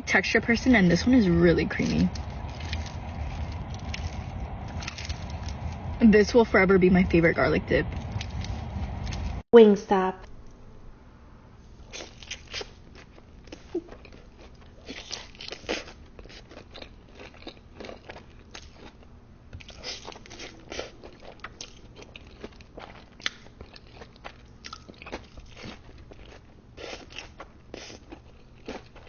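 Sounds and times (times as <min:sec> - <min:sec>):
crunchy bites and chewing: 0:11.9 - 0:29.0.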